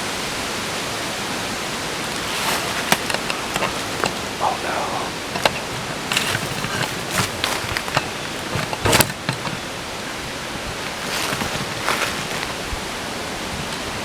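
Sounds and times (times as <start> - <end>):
short crackles: 2.0 - 12.8.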